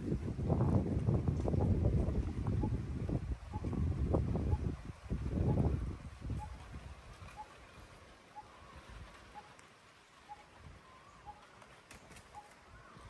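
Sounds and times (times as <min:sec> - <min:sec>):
soft bird calls: 0:03.4 - 0:04.8, 0:05.4 - 0:13.0.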